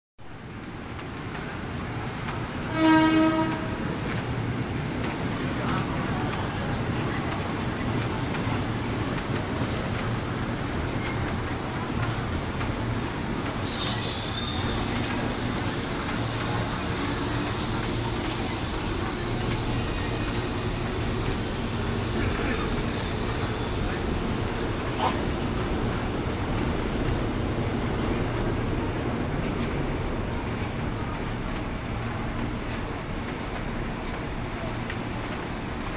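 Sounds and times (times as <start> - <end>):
train rumbling: 0.3 - 35.9
shrill wheel squeal: 7.5 - 11.0, 13.0 - 24.1.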